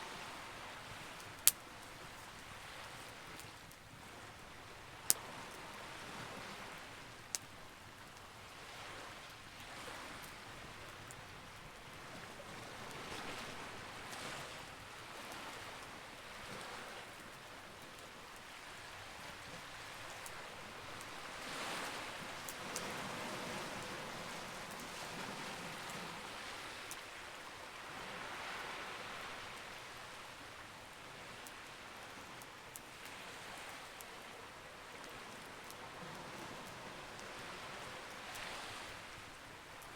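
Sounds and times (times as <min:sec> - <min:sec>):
fire crackling pops: 0:00.8 - 0:04.0, 0:04.6 - 0:05.3, 0:07.0 - 0:08.3.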